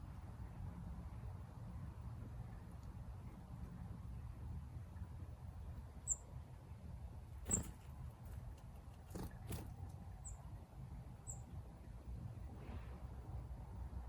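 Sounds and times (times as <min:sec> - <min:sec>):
small bird high chirps: 0:06.0 - 0:06.3, 0:07.5 - 0:07.7, 0:10.2 - 0:10.5, 0:11.2 - 0:11.6.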